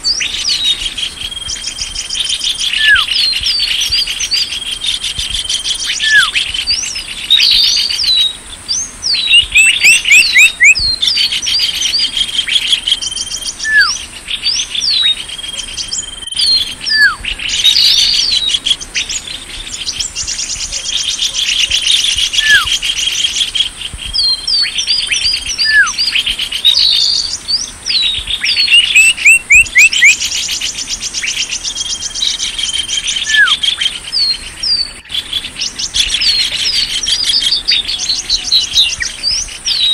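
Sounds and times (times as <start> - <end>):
fast rattling bird trills: 0.0 - 39.9
small birds chirping: 0.0 - 39.9
down-slurred whistled notes: 0.1 - 11.0, 12.9 - 19.2, 21.5 - 22.8, 24.1 - 30.2, 31.3 - 35.1.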